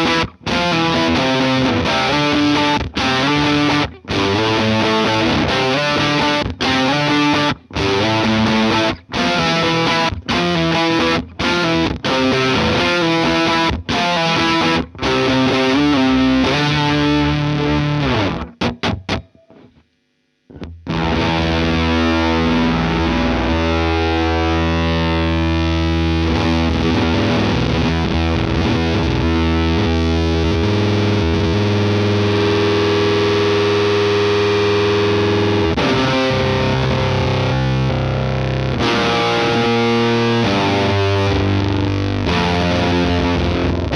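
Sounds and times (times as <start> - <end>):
distorted electric guitar: 0.0 - 43.9.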